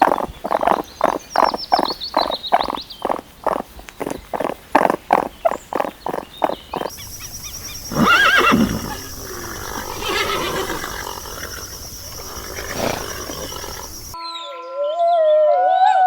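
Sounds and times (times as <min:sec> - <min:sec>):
background hiss: 0:00.0 - 0:14.2
horse whinnying: 0:06.8 - 0:14.2.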